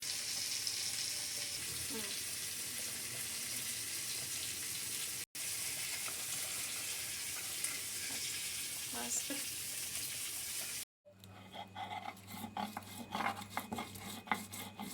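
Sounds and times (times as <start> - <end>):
water running from tap: 0.0 - 10.8.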